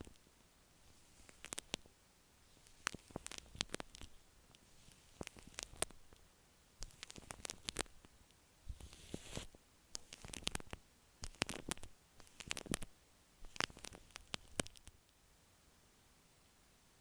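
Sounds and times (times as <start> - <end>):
wet crackles and pops: 0.9 - 1.9, 2.5 - 15.0.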